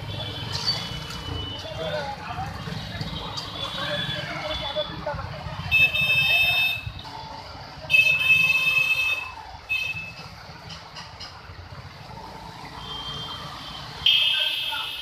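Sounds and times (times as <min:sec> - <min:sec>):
low traffic rumble: 0:00.0 - 0:15.0
vehicle horns honking: 0:05.6 - 0:07.0, 0:07.9 - 0:10.2, 0:14.0 - 0:15.0.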